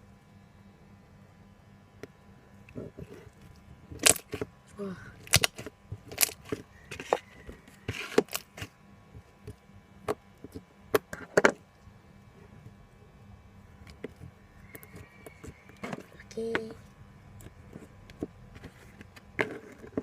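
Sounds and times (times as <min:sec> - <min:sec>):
slime clicking and popping: 0:05.3 - 0:06.4.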